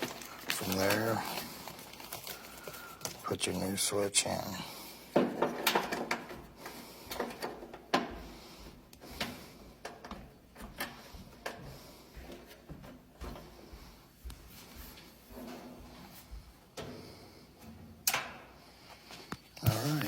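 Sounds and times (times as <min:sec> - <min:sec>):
plastic clicks and knocks: 0:05.2 - 0:06.4.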